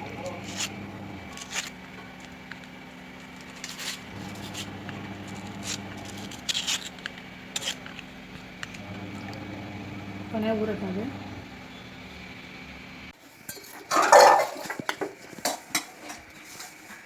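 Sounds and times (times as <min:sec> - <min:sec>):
crisp papad crackles and clicks: 0:00.3 - 0:08.8.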